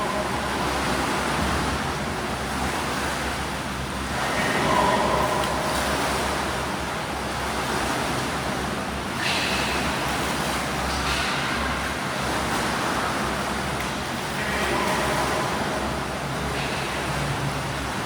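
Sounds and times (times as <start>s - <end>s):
swimmers water noise: 0.0s - 18.0s
water splashing: 4.0s - 18.0s.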